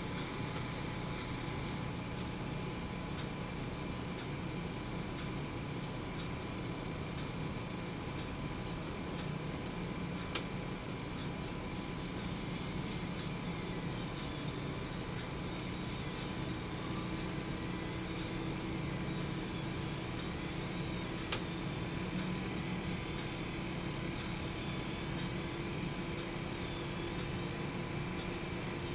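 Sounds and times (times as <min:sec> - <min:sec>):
computer power supply fan hum: 0:00.0 - 0:28.9
faint high whine: 0:12.0 - 0:28.9.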